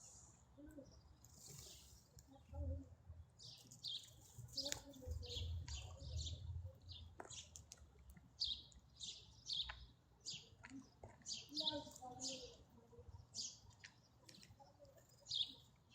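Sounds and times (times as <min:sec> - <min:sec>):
songbird chirping: 0:00.0 - 0:15.9.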